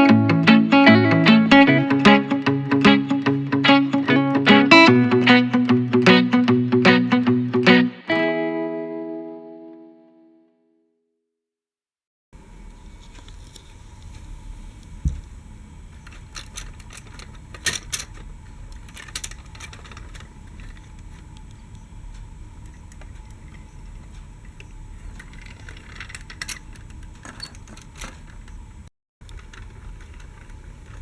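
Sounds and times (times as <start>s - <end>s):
toy vehicles clicking and clattering: 16.0s - 21.2s, 25.0s - 28.6s, 29.2s - 31.0s.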